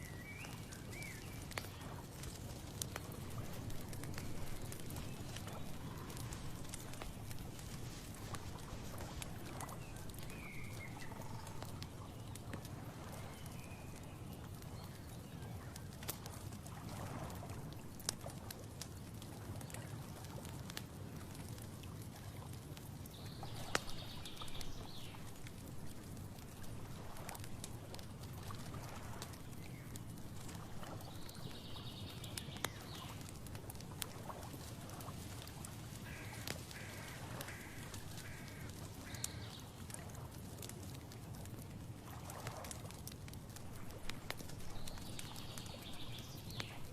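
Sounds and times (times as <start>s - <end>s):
birds calling: 36.0s - 39.6s.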